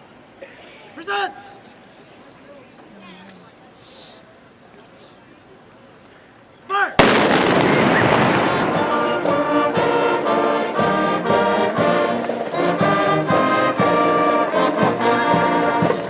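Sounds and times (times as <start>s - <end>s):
rifle shots: 7.0s - 10.2s
military brass band playing: 7.0s - 16.0s.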